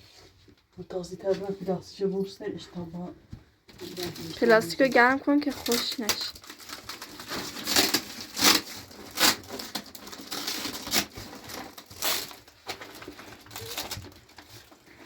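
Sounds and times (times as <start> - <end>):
plastic sheeting crinkling: 3.8 - 15.0.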